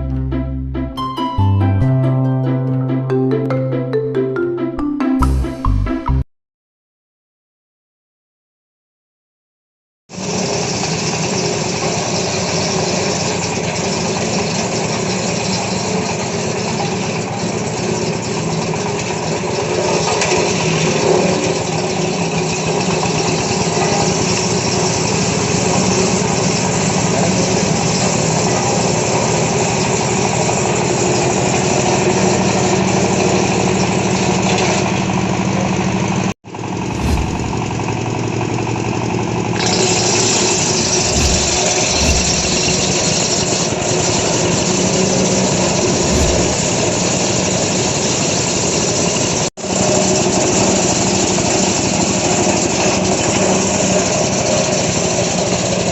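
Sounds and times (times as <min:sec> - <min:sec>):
wood crusher machine droning: 0:10.2 - 0:29.4, 0:36.6 - 0:55.9.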